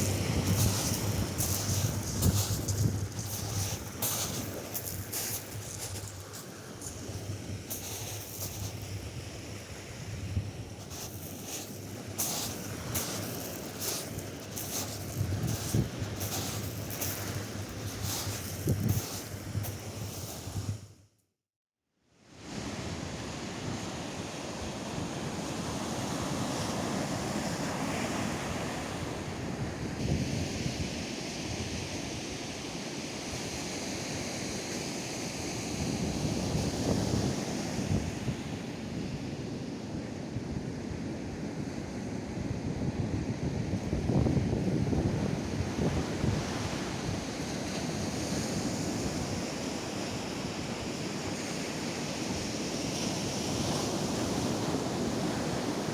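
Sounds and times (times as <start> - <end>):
surf breaking on sandy beach: 0.0 - 20.8
wind buffeting microphone: 0.0 - 20.8.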